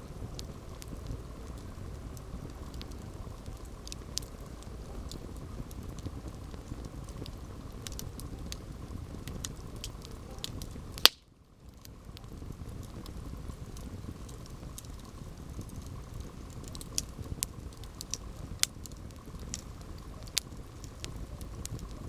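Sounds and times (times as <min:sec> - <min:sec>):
campfire crackling: 0:00.0 - 0:22.0
low steady rumble: 0:00.0 - 0:22.0.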